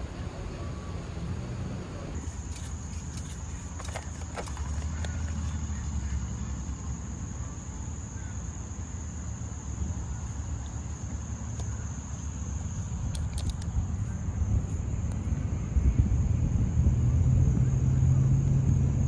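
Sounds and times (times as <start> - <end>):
insects buzzing: 0.0 - 17.1.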